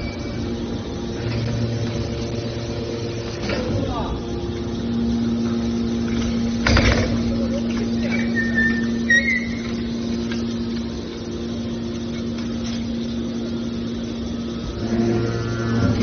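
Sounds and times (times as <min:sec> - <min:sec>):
high metal squeals: 0:00.0 - 0:03.2, 0:08.0 - 0:10.1, 0:14.5 - 0:16.0
hydraulic power unit humming: 0:00.0 - 0:16.0
low machine tone: 0:00.0 - 0:16.0.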